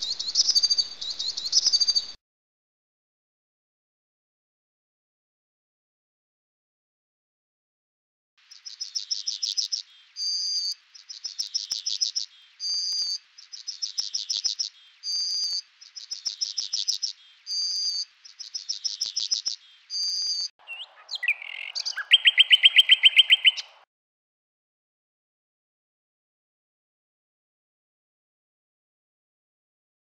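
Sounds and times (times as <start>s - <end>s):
high-pitched bird song: 0.0s - 2.2s, 8.5s - 23.8s.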